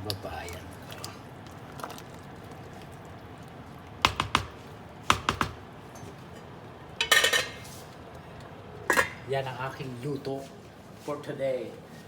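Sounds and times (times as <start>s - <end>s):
utensil tapping against a pot: 4.0s - 5.6s.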